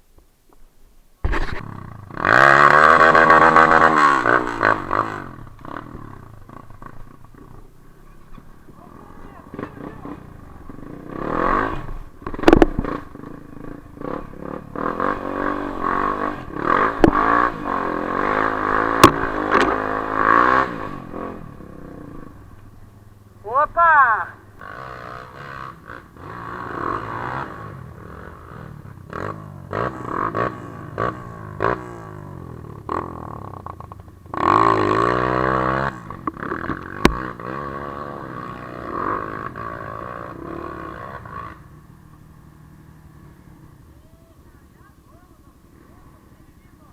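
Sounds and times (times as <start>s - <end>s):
motorcycle engine revving: 1.2s - 46.9s
sharp knocks: 19.0s - 19.8s.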